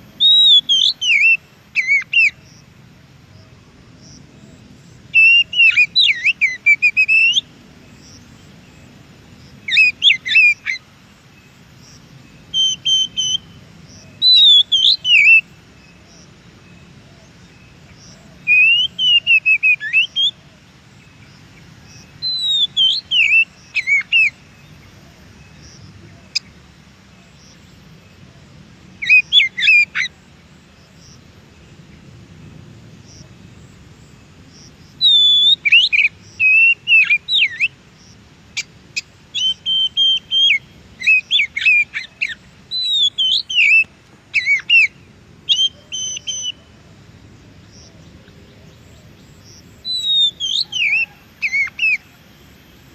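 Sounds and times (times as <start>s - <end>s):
bird singing whistled phrases: 0.2s - 2.4s, 5.1s - 7.5s, 12.5s - 13.6s, 14.2s - 15.4s, 18.5s - 20.4s, 22.2s - 24.4s, 29.0s - 30.1s, 35.0s - 37.7s, 39.3s - 46.6s, 49.8s - 52.1s.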